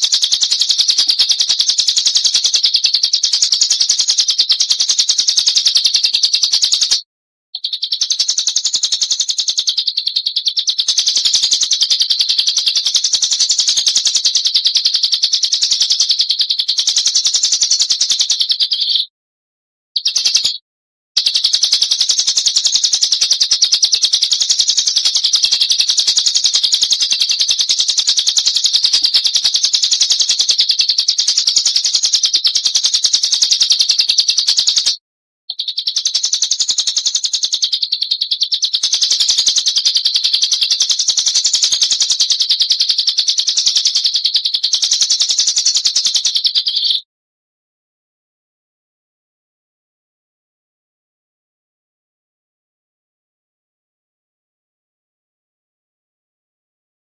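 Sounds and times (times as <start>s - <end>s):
bird chattering trill: 0.0s - 7.0s, 7.6s - 19.1s, 20.0s - 20.6s, 21.2s - 47.0s.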